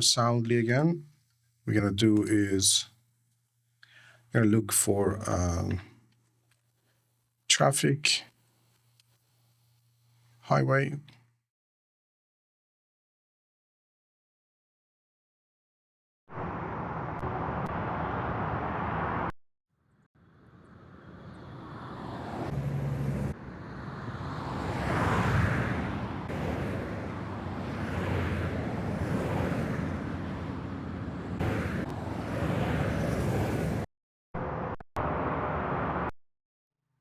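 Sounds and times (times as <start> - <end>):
highway road noise: 16.4 - 19.3, 20.2 - 33.9
vehicles passing: 16.4 - 19.3, 20.2 - 33.9.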